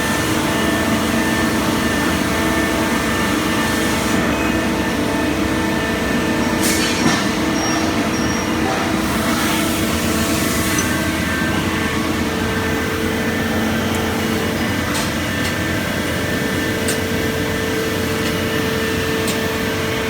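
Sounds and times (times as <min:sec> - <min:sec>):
lathe machine hum: 0:00.0 - 0:20.0.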